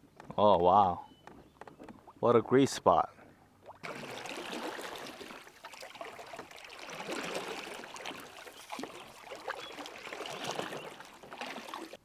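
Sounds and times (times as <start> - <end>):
water splashing around a kayak: 3.2 - 12.0.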